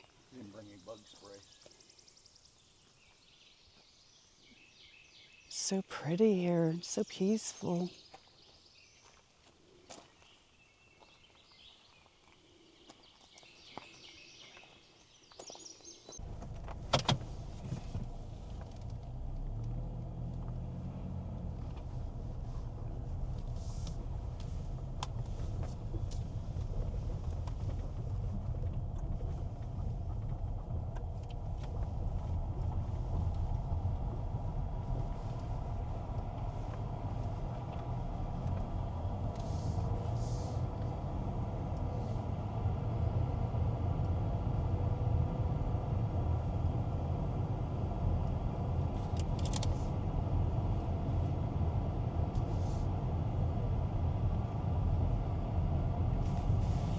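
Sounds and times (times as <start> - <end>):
car engine low rumble: 16.1 - 56.9
faint clicks: 16.2 - 41.0.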